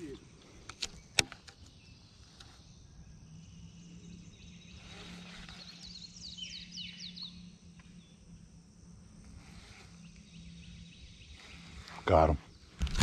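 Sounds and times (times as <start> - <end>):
faint low hum: 0.0 - 13.0
bird singing high falling notes: 5.6 - 8.4.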